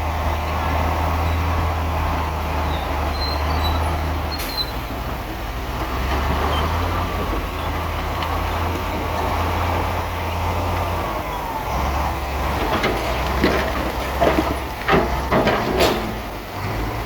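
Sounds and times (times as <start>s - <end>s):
diesel engine droning: 0.0s - 17.0s
faint metallic squeaks: 2.7s - 4.8s.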